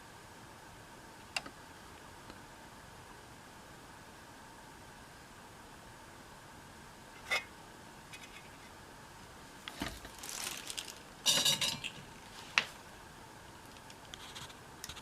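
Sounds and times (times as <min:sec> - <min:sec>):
metal tools clinking on workbench: 0:11.3 - 0:12.0.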